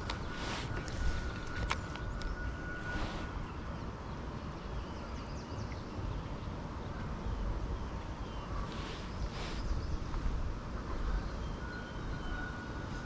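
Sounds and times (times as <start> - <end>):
short hissing swishes: 8.7 - 9.7
faint bird chirps: 10.9 - 13.0.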